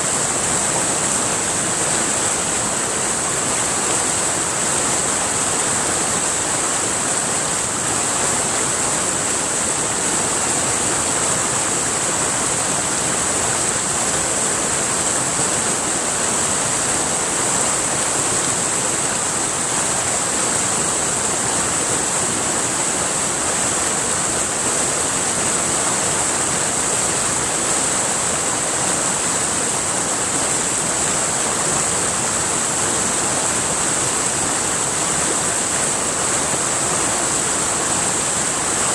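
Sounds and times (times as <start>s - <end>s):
river water rushing over rocks: 0.0s - 38.9s.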